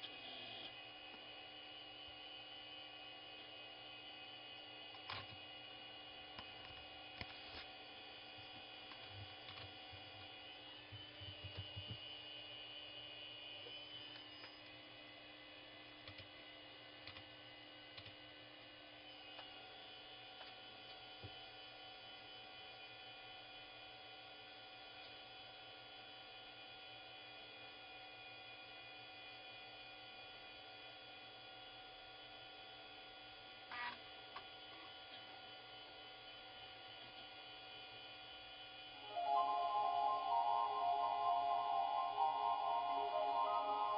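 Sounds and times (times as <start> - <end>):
high steady tones: 39.1 - 43.9.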